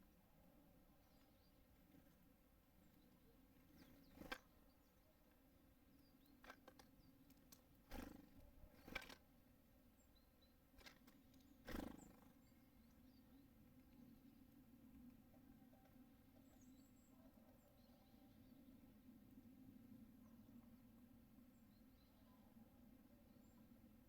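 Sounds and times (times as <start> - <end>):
faint steady hum: 0.0 - 24.0
small birds chirping: 0.0 - 24.0
birds knocking and pecking: 6.2 - 9.2, 10.7 - 12.4.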